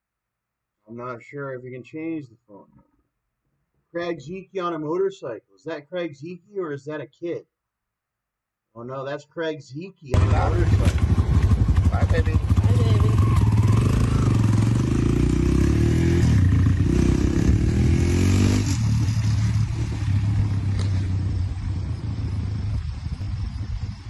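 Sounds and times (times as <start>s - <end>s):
dirt bike engine running: 10.2s - 24.0s.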